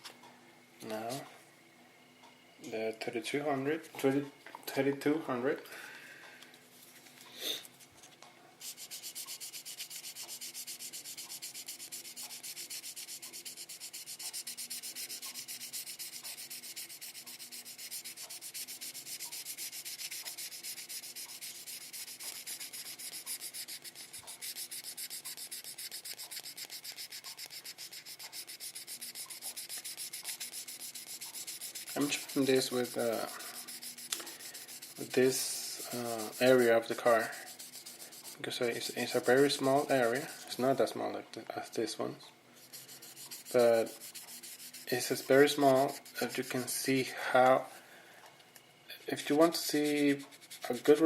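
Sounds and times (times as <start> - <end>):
sandpaper rubbing strokes: 8.6 - 40.9, 42.6 - 46.9, 49.2 - 51.0.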